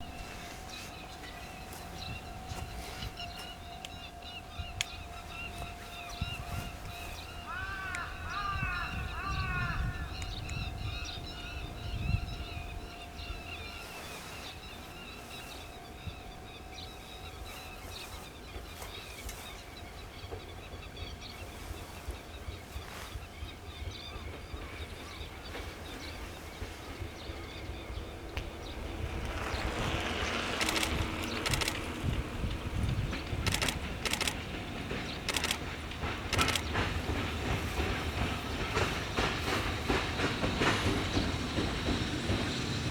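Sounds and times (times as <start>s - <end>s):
birds chirping and calling: 0.2s - 23.1s, 23.7s - 42.8s.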